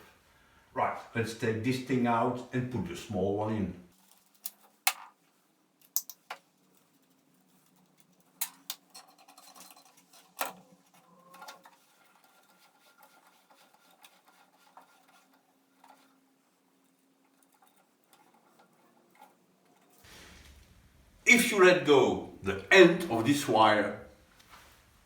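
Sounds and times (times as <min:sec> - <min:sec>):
sharp clicks and knocks: 0:05.8 - 0:06.5
scraping: 0:06.4 - 0:20.9.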